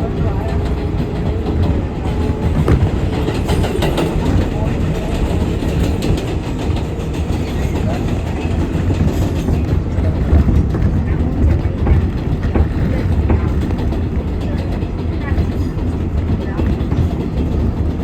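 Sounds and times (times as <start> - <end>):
subway wheels rumbling on rails: 0.0 - 18.0.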